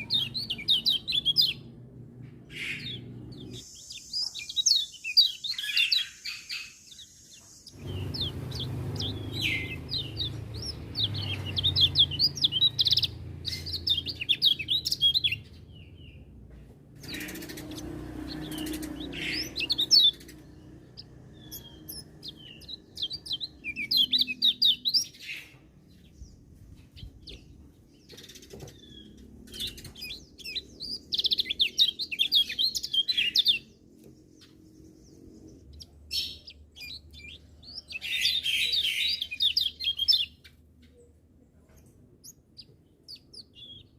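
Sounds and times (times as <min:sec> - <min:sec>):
bird twittering: 0:00.0 - 0:01.7, 0:02.5 - 0:16.2, 0:17.0 - 0:25.6, 0:27.0 - 0:33.8.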